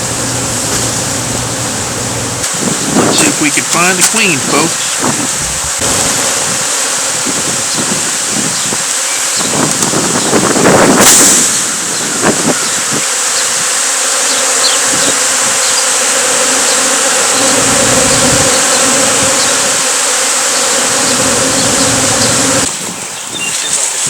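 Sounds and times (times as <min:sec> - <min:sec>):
bees buzzing: 0:00.0 - 0:23.1.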